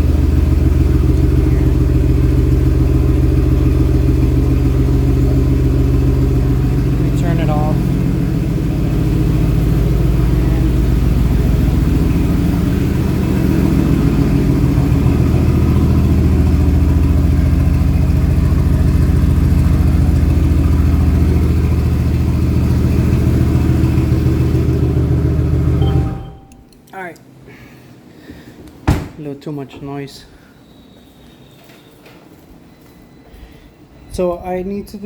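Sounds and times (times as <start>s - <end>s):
car engine idling: 0.0s - 26.5s.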